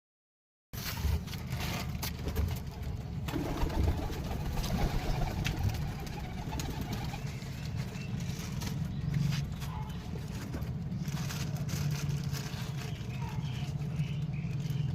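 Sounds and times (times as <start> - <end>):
pigeons cooing: 3.3 - 7.3.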